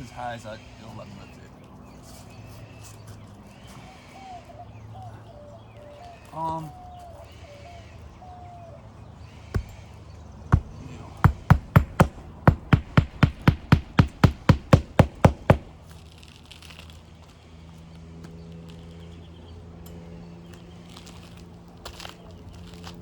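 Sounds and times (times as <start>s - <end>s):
palm nailer striking nail: 9.6s - 9.8s, 10.5s - 16.0s.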